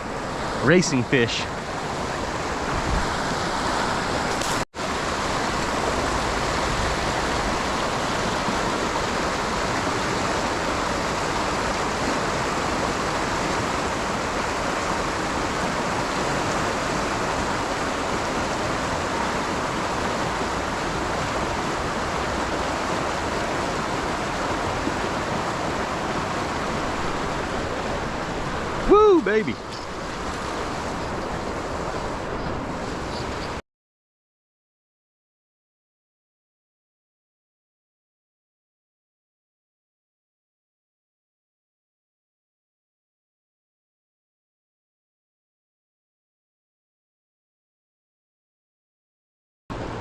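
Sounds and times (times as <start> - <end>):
river water rushing: 0.0 - 33.6, 49.7 - 50.0.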